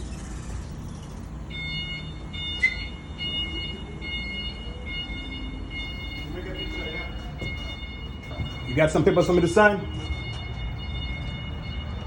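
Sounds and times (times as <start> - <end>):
reversing alarm beeping: 0.1 - 12.0.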